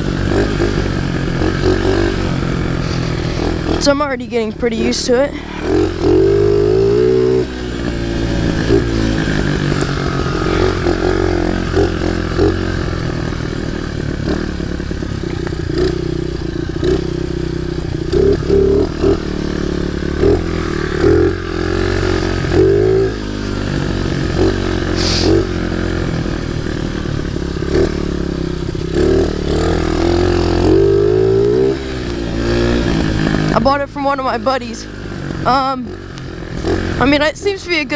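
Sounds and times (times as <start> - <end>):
small motorbike engine running: 0.0 - 37.9.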